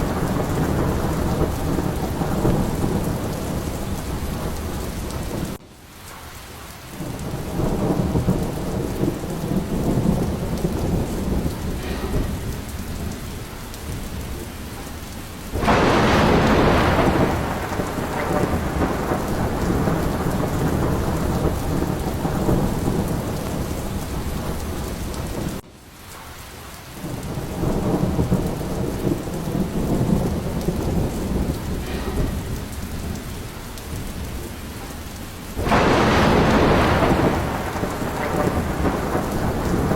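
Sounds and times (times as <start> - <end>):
loud thunderclap: 0.0 - 5.6, 7.0 - 25.6, 27.0 - 39.9
rolling thunder: 0.0 - 5.6, 6.8 - 25.6, 27.0 - 39.9
heavy rain: 0.0 - 39.9.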